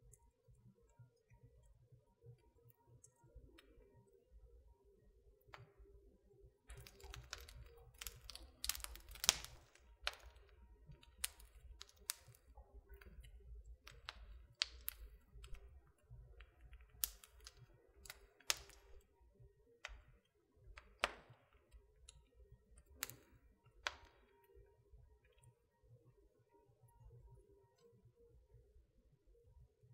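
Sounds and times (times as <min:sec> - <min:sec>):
wood fire crackling and popping: 0:06.7 - 0:19.2, 0:19.8 - 0:24.6.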